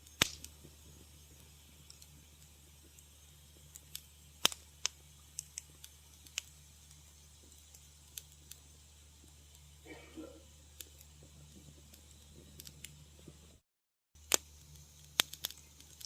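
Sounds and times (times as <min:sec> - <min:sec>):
faint low hum: 0:00.0 - 0:13.6
wood fire pops and snaps: 0:00.0 - 0:13.6, 0:14.2 - 0:16.0.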